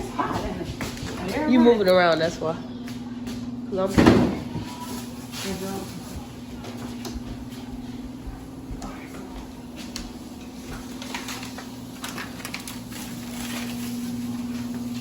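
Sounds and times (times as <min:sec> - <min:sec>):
packaging knocks and crinkles: 0:10.9 - 0:14.2.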